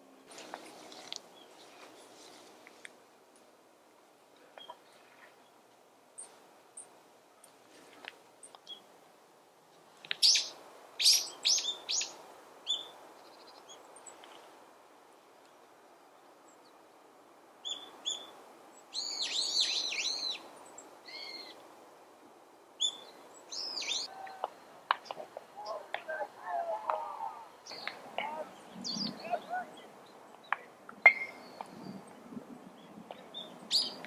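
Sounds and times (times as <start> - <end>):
small birds chirping: 0.0 - 3.0, 4.3 - 9.0, 9.9 - 14.6, 15.4 - 21.8, 22.7 - 34.0
repeated arching bird calls: 10.1 - 14.4, 17.6 - 21.6, 22.8 - 32.0.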